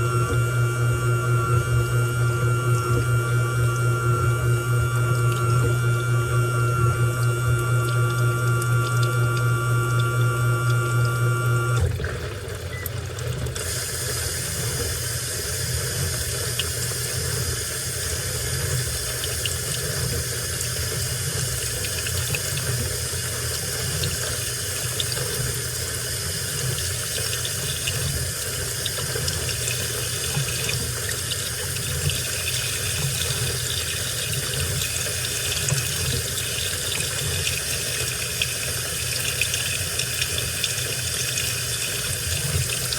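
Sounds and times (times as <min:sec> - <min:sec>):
loud machine hum: 0:00.0 - 0:12.6
water rushing into washing machine: 0:00.0 - 0:42.9.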